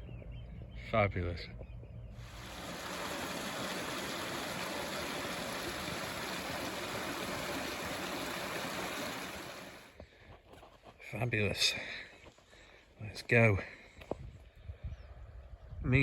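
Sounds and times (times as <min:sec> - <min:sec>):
running water rushing: 0:02.2 - 0:10.0.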